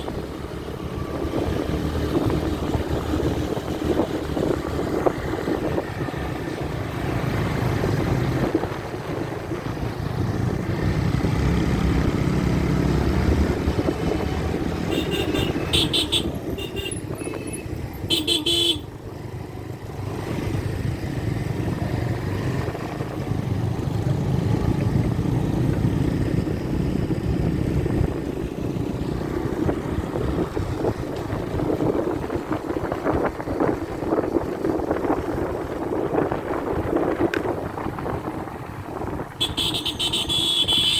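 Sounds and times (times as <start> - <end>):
motorcycle engine and wind: 0.0 - 40.9
horn beeping: 14.8 - 18.9, 39.4 - 40.9.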